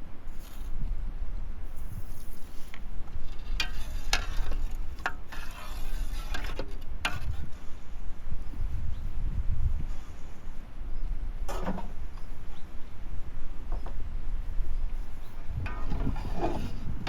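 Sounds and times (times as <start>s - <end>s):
utensil scraping a pot: 1.8s - 7.6s, 15.0s - 17.0s.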